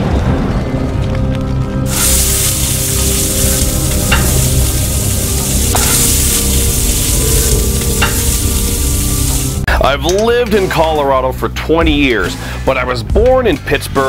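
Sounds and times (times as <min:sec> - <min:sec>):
food sizzling on a griddle: 0:01.9 - 0:09.7.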